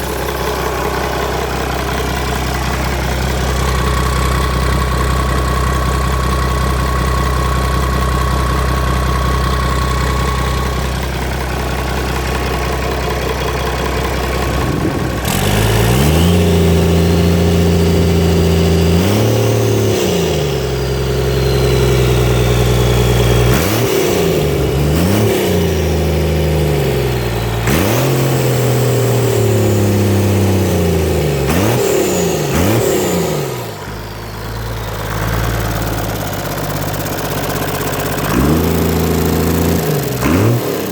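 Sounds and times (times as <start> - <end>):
diesel engine idling and revving: 0.0 - 40.9
faint high turbo whistle: 20.6 - 23.9.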